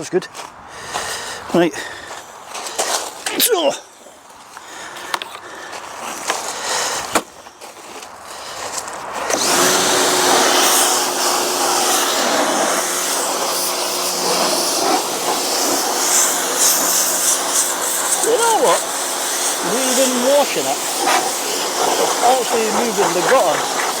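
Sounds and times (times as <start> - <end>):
pressure washer motor hum: 9.3 - 24.0
water jet hissing: 9.3 - 24.0.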